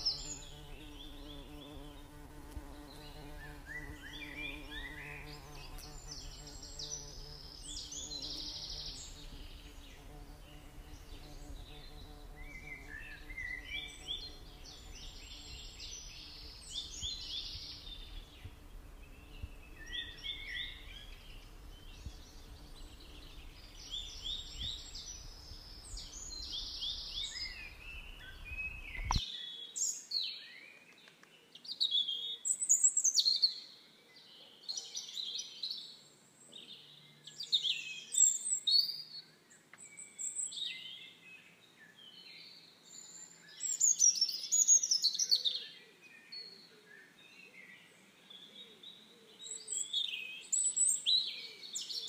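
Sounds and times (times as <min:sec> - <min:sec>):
songbirds singing: 0:00.0 - 0:52.0.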